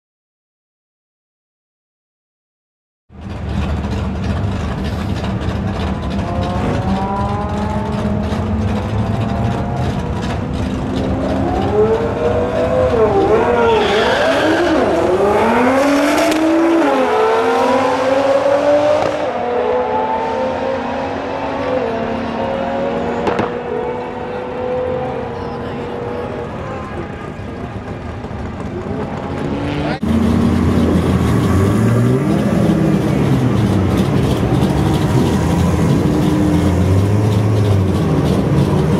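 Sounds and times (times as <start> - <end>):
sports car accelerating hard: 3.3 - 26.7, 27.9 - 38.9
sharp crack: 23.2 - 23.6.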